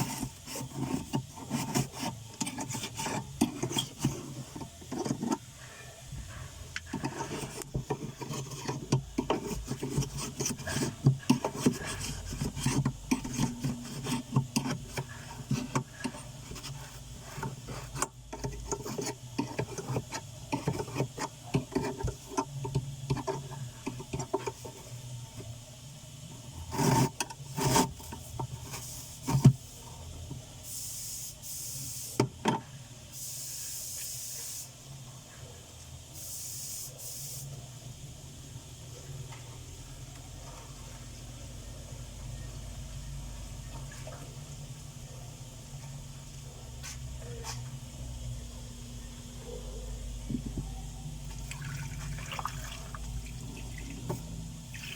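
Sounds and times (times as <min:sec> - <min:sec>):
scrubbing and rubbing: 0:00.0 - 0:05.6, 0:06.9 - 0:25.0, 0:26.6 - 0:29.6
hiss: 0:30.6 - 0:32.2, 0:33.1 - 0:34.8, 0:36.2 - 0:37.5.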